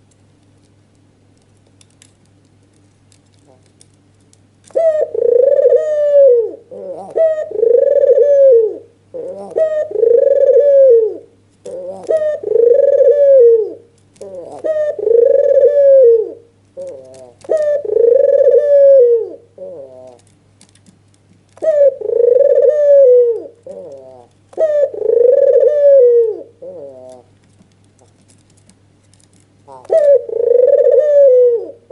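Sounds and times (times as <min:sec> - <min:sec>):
faint low hum: 0:00.0 - 0:31.9
dove cooing: 0:04.7 - 0:20.3, 0:21.6 - 0:27.4, 0:29.6 - 0:31.9.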